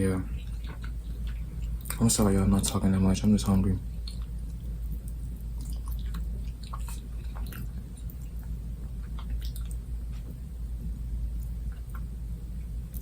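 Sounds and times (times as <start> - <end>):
steady low hum: 0.0 - 13.0
person chewing chicken wings: 0.3 - 2.0, 4.0 - 10.3
wet mouth smacks and clicks: 4.1 - 9.8.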